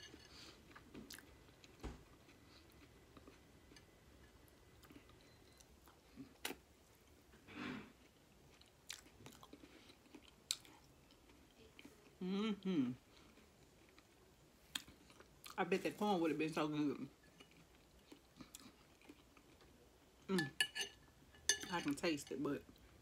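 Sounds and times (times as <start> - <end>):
faint chewing and biting: 0.1 - 7.2, 7.9 - 12.2, 17.3 - 19.8.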